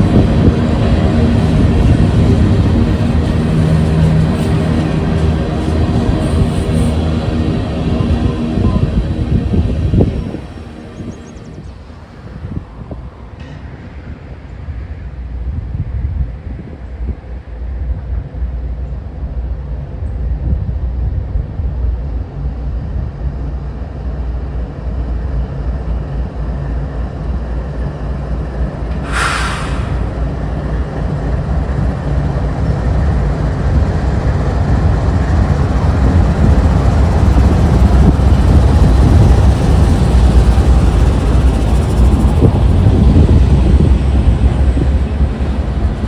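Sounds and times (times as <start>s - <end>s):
diesel train engine rumble: 0.0s - 46.0s
burst of hiss: 29.0s - 30.5s.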